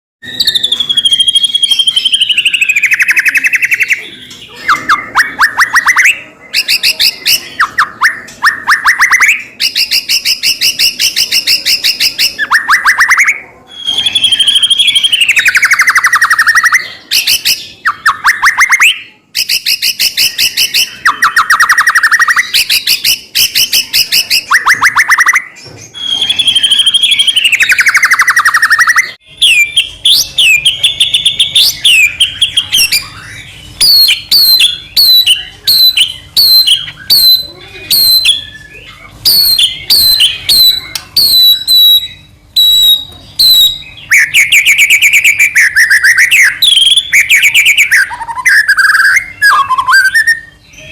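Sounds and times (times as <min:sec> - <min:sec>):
songbird singing: 0:00.2 - 0:50.9.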